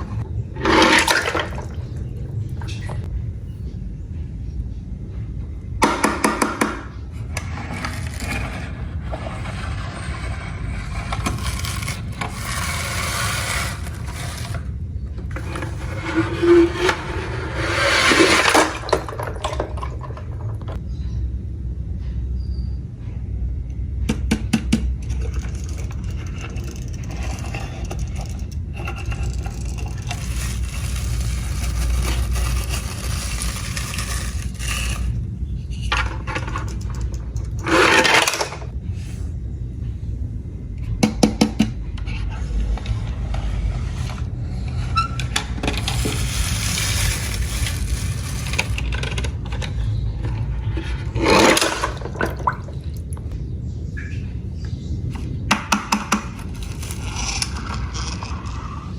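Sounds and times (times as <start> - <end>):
toy cars clattering and scraping: 0.0 - 2.9, 5.8 - 20.8, 24.7 - 38.8, 42.0 - 52.7, 55.2 - 58.9
steady low rumble: 1.5 - 5.8, 19.0 - 37.6, 38.6 - 51.2.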